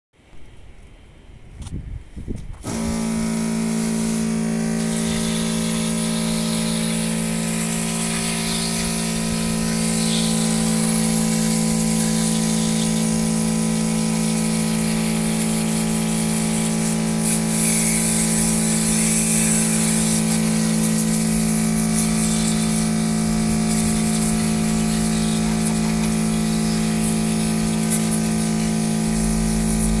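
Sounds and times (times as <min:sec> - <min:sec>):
pump motor humming and hissing: 0:02.4 - 0:30.0.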